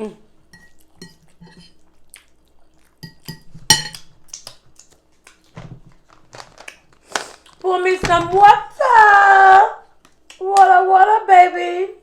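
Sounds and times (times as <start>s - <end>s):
utensils and dishes clinking: 3.0s - 4.1s.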